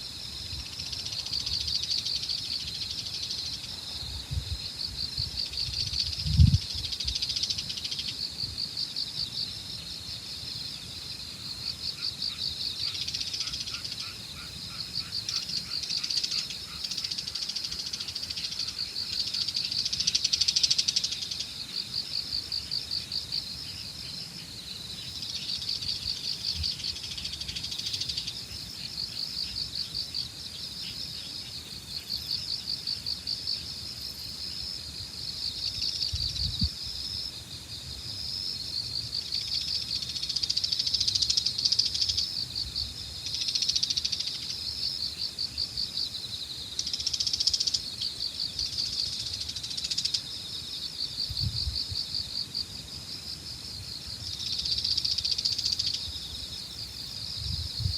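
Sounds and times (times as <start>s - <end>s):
insects chirping: 0.0s - 57.9s
wind rumble on microphone: 3.7s - 7.4s, 36.0s - 37.0s, 51.2s - 52.2s, 57.2s - 57.9s.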